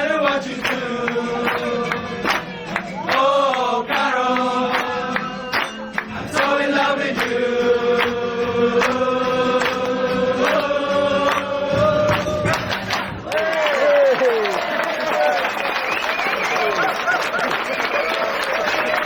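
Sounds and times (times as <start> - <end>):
group singing chant-like chorus: 0.0 - 12.9
backing music: 0.0 - 13.4.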